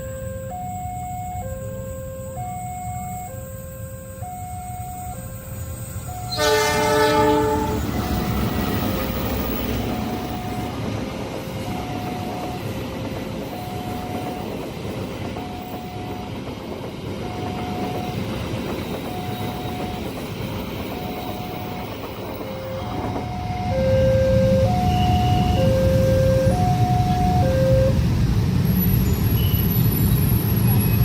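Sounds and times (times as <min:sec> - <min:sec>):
crossing alarm two-tone signal: 0:00.0 - 0:28.1
train rumbling past: 0:00.0 - 0:31.0.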